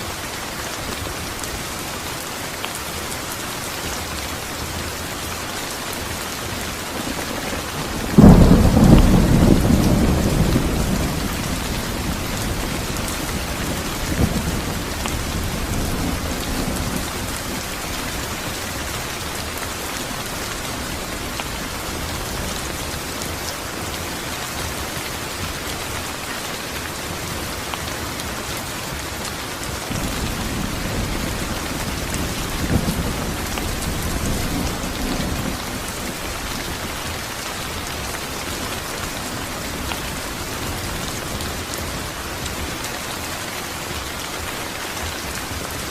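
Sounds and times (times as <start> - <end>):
steady rain: 0.0 - 45.9
thunder clap and rumble: 6.9 - 18.6, 29.8 - 41.8.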